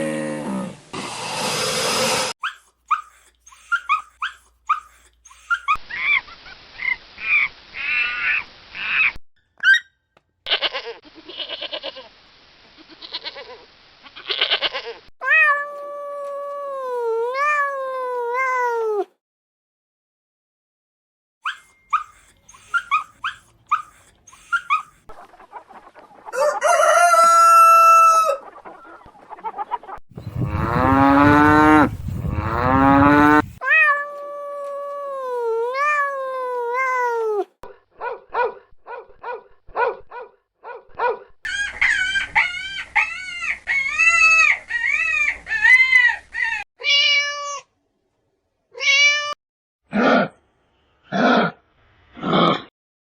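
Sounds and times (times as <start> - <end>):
chickens and roosters calling: 24.6 - 33.6, 41.5 - 46.6.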